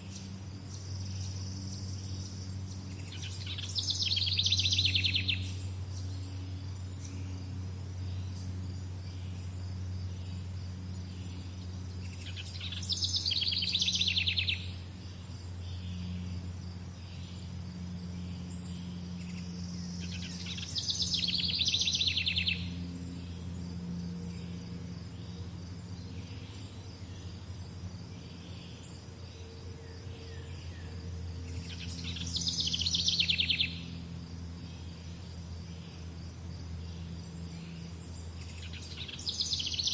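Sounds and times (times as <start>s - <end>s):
songbird trilling: 0.0s - 7.3s, 12.0s - 14.8s, 18.2s - 22.8s, 29.9s - 34.0s, 37.6s - 39.9s
insects chorus: 0.0s - 39.9s
low steady hum: 0.0s - 39.9s.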